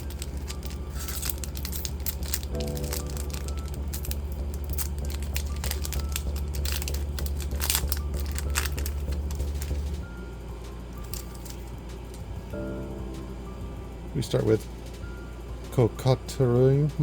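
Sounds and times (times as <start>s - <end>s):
foil pack crinkling and tearing: 0.0s - 10.0s, 11.0s - 11.6s.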